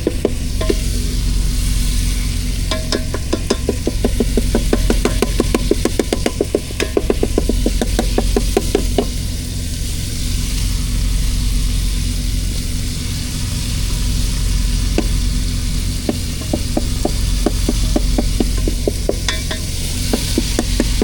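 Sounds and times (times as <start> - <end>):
sharp taps: 0.0 - 1.1, 2.7 - 9.2, 15.0 - 21.0
meat sizzling in a frying pan: 0.0 - 21.0.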